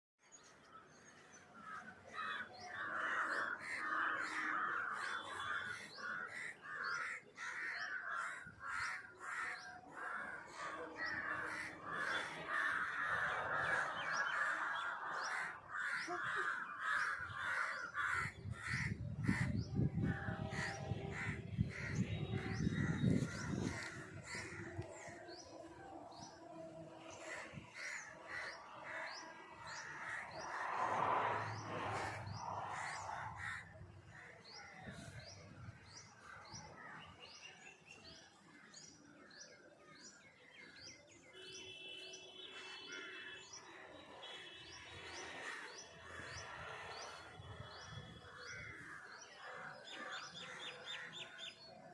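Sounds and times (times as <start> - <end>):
crows cawing: 1.6 - 22.0, 27.2 - 30.9, 32.0 - 34.9.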